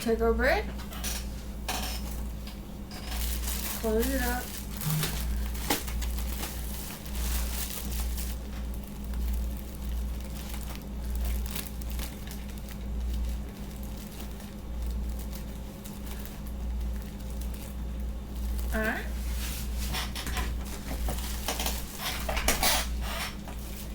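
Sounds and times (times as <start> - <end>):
steady low hum: 0.0 - 23.9
packaging rustling and clicks: 3.0 - 17.8.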